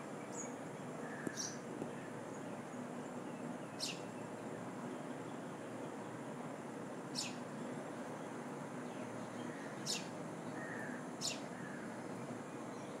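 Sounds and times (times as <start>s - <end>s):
steady background hiss: 0.0s - 13.0s
small bird chirping: 3.6s - 4.3s, 7.1s - 7.4s, 8.9s - 11.8s.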